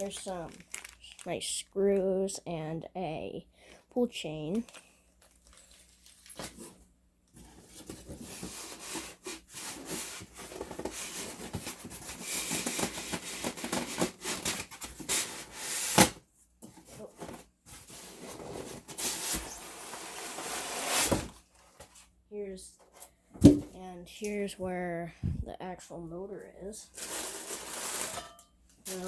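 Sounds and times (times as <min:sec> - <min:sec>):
packaging rustling and scraping: 0:00.0 - 0:01.5, 0:04.5 - 0:22.2, 0:26.9 - 0:29.0.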